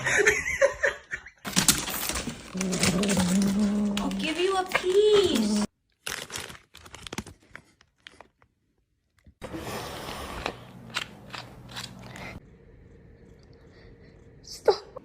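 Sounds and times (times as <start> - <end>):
pet crunching food: 10.7 - 12.4.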